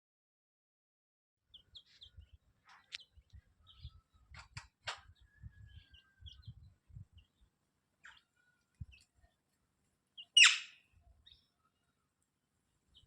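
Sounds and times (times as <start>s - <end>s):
parrot chirping and squawking: 10.3s - 10.8s.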